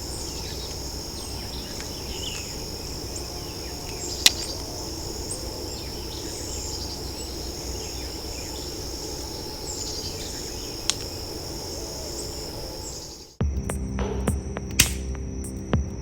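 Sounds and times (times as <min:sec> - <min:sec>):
night insects chirring: 0:00.0 - 0:16.0
sharp knock: 0:14.2 - 0:15.2.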